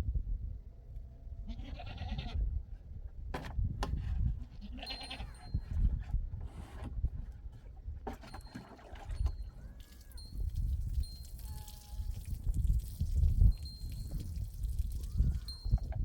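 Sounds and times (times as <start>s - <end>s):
livestock bleating: 1.4s - 2.4s, 4.6s - 5.4s.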